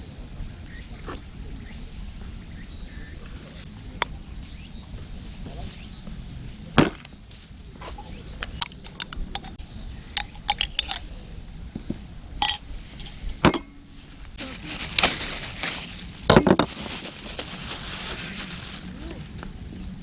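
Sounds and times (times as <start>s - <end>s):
metal cookware clinking: 10.2s - 11.0s, 12.4s - 13.7s
rustle: 10.2s - 20.0s.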